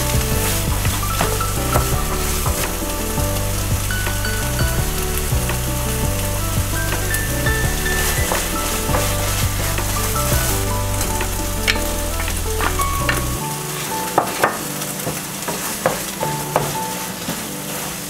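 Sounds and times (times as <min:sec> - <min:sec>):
curry paste sizzling in a pan: 0:00.0 - 0:18.0.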